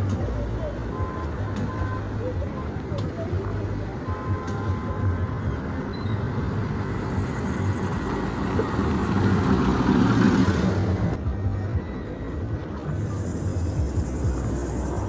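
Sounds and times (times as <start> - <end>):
engines in slow traffic: 0.0 - 15.0
vehicle passing close: 6.2 - 11.2.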